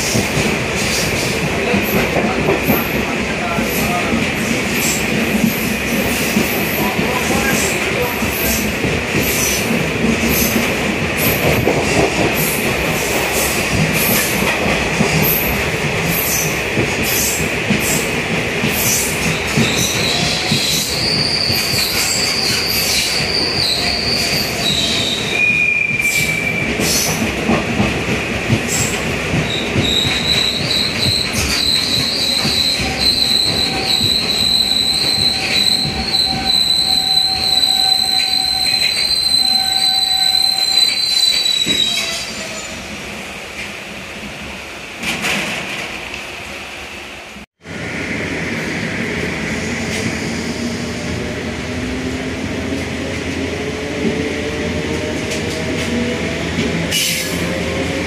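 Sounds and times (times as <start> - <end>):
train running rumble: 0.0 - 39.1
high-pitched wheel and brake squeal: 29.5 - 42.8.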